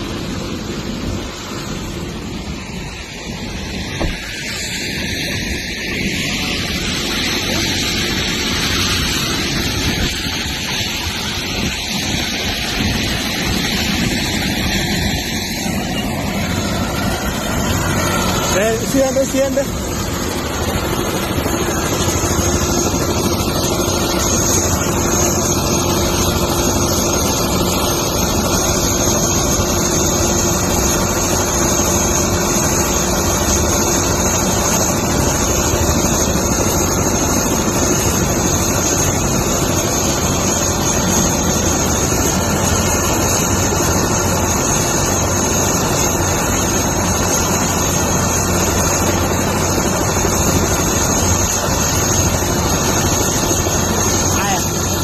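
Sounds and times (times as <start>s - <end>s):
helicopter roar: 0.0s - 55.0s
high turbine whine: 0.0s - 55.0s.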